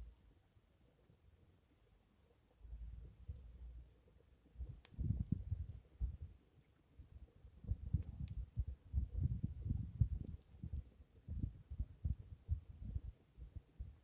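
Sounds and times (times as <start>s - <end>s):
fire crackling: 2.4s - 14.0s
wind buffeting microphone: 4.6s - 6.3s, 7.4s - 14.0s.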